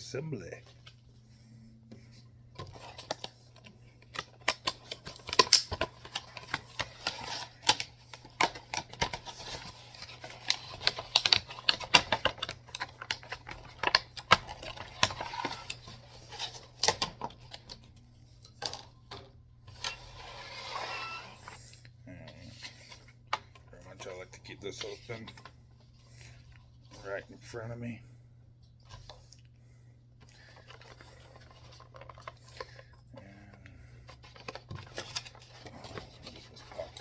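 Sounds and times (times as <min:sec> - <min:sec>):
packaging rustle: 0:30.3 - 0:32.9, 0:34.0 - 0:37.0.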